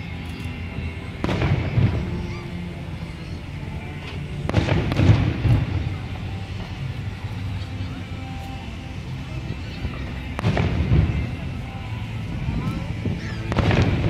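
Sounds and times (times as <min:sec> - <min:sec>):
fireworks bangs and crackle: 0:01.1 - 0:02.7, 0:04.0 - 0:07.6, 0:09.8 - 0:11.6, 0:12.4 - 0:14.0.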